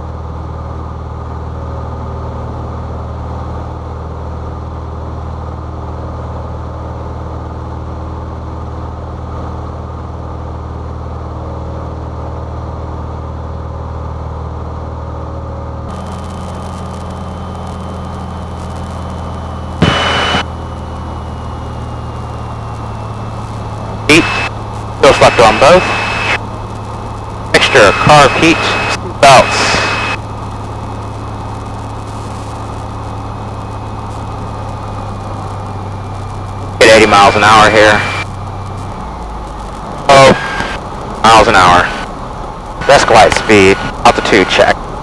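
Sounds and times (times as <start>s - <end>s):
propeller plane engine droning: 15.9s - 45.0s
short loud burst of noise: 15.9s - 45.0s.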